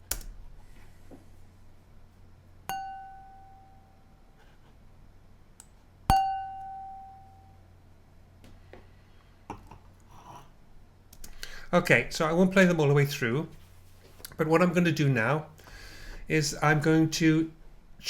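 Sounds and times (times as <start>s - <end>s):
wine glass tapped ringing: 2.7s - 3.9s, 6.1s - 7.6s.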